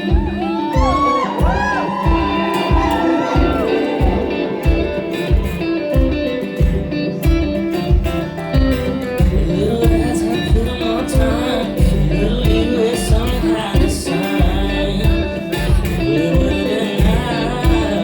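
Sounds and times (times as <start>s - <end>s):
live band electric guitar: 0.0s - 18.0s
steady low drum beat: 0.0s - 18.0s.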